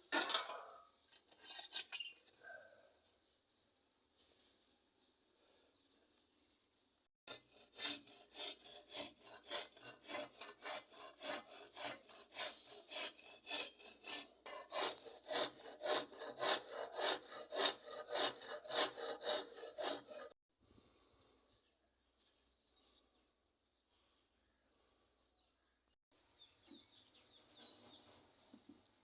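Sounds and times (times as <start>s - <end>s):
hand tool scraping a surface: 7.3s - 20.4s.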